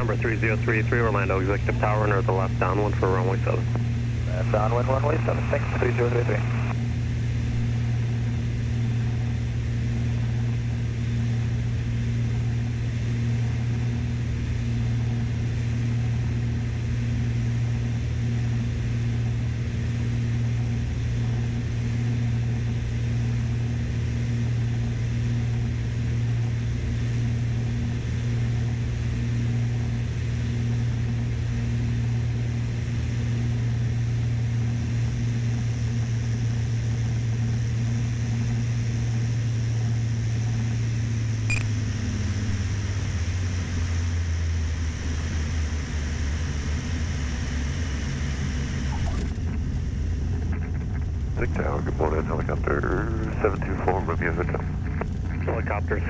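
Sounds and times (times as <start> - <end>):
piston aircraft engines droning: 0.0 - 56.0.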